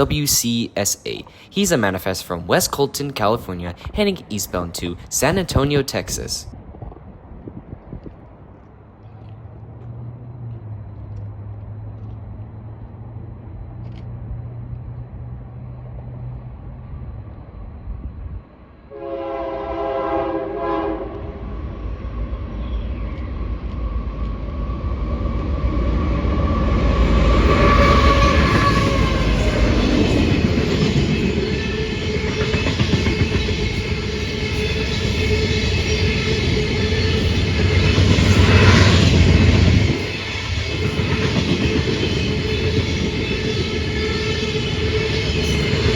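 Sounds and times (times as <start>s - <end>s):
train rumbling on rails: 0.0s - 45.9s
train horn blast: 18.9s - 21.5s, 27.3s - 30.5s.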